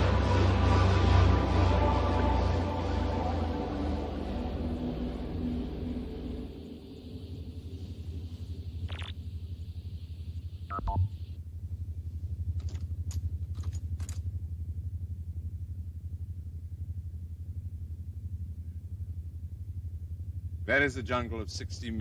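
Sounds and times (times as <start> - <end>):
fast-pulsing low electronic hum: 0.0 - 22.0
short electronic beeps: 8.9 - 9.2, 10.7 - 11.2.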